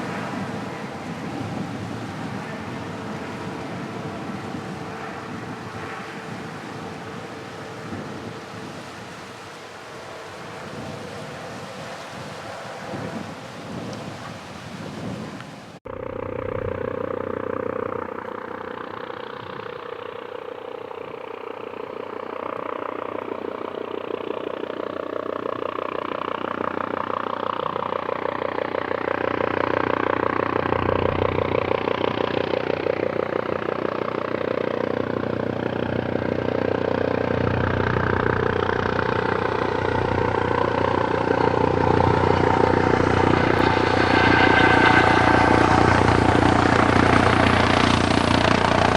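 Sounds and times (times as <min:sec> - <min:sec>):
helicopter rotor beating: 0:00.0 - 0:48.9
turbine engines: 0:00.0 - 0:48.9.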